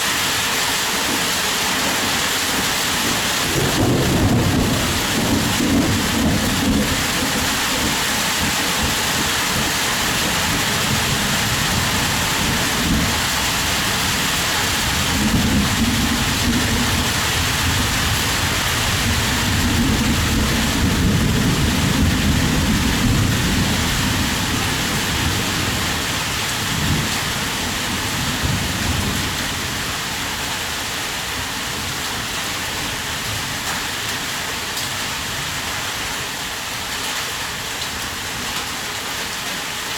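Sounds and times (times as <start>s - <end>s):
heavy rain: 0.0s - 39.9s
rolling thunder: 3.1s - 29.8s.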